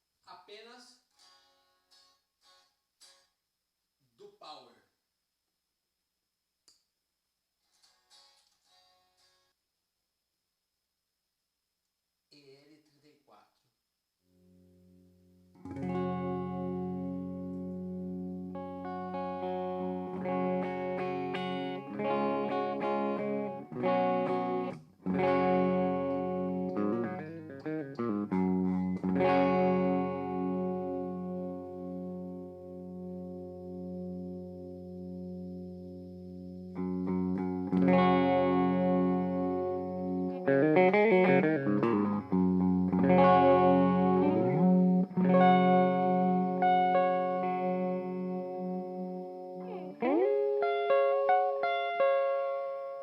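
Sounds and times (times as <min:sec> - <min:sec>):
electric guitar notes and chords: 0:15.5 - 0:53.0.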